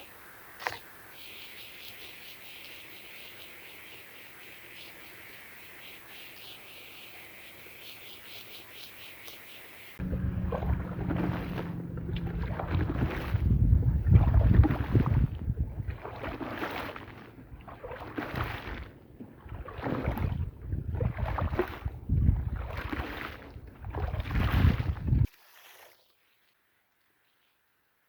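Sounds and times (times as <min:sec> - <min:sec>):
low steady hum: 0:10.0 - 0:16.4.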